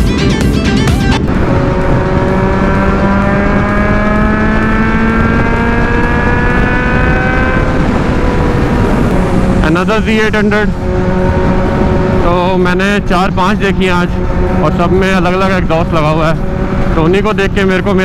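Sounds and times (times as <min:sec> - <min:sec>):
loud wind rush: 0:00.0 - 0:18.0.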